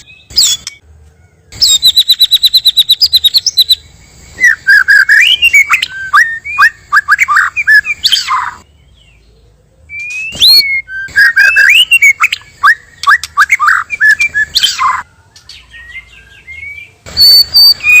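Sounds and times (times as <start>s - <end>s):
songbird whistling song: 0.0s - 0.8s, 1.5s - 18.0s.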